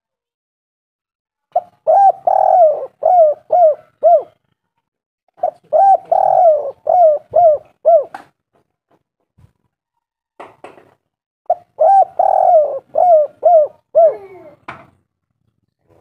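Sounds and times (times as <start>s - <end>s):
dove cooing: 1.6s - 4.4s, 5.4s - 8.3s, 11.5s - 14.7s.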